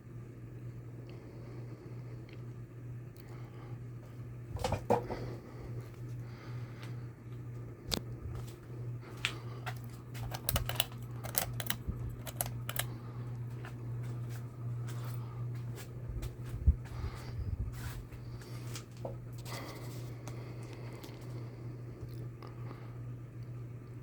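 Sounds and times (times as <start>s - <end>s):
ceiling fan motor hum: 0.0s - 24.0s
sharp clicks: 10.2s - 12.9s.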